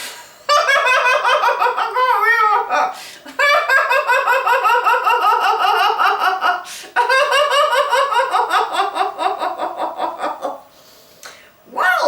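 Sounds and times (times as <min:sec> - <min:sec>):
woman laughing heartily: 0:00.5 - 0:10.7
quick in-breath: 0:03.0 - 0:03.3, 0:10.7 - 0:11.6.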